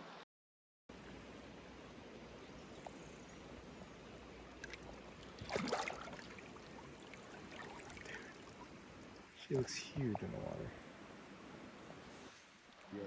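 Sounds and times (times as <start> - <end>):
water trickling and lapping: 1.0 - 10.3
water splash: 4.6 - 8.7.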